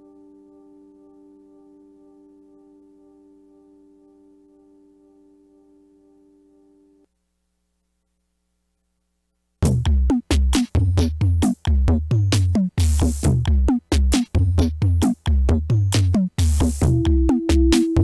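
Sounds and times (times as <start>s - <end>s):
drum machine beat: 9.6s - 18.0s
low bass pulse: 16.8s - 18.0s.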